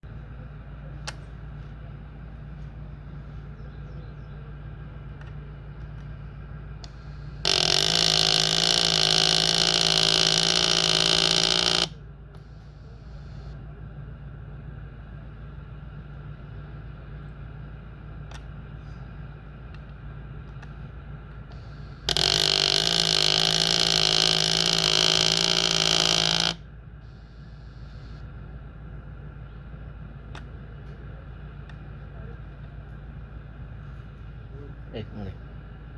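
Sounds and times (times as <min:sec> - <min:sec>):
steady hum: 0:00.0 - 0:35.9
motor grinding: 0:06.8 - 0:13.6, 0:20.5 - 0:28.3.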